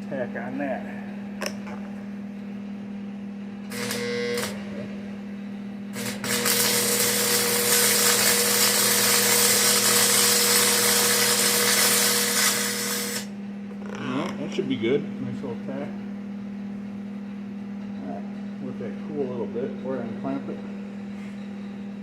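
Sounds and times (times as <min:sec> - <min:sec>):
constant low hum: 0:00.0 - 0:22.0
arc welder buzzing: 0:03.6 - 0:14.1.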